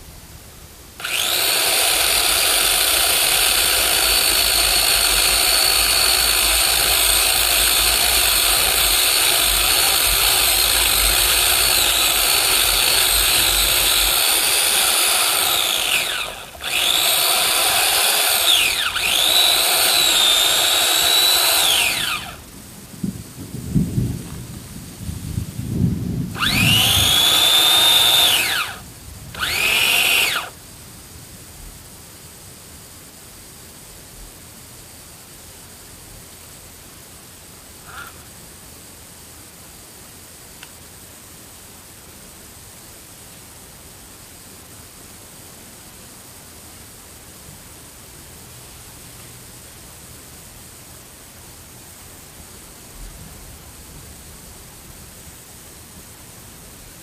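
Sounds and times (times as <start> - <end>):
electric chainsaw cutting wood: 1.0 - 22.4, 26.4 - 30.6, 37.8 - 38.3.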